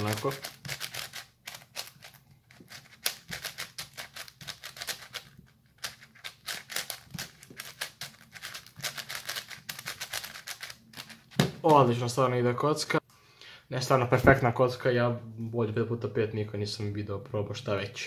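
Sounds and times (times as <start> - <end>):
speed cube clicking: 0.0 - 11.3.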